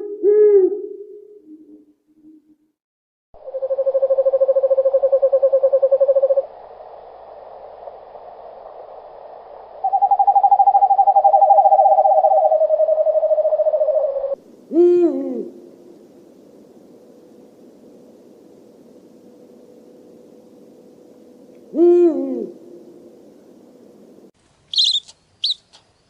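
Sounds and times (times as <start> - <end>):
owl trilled calls: 3.4 - 6.4, 9.8 - 15.0, 24.7 - 25.6.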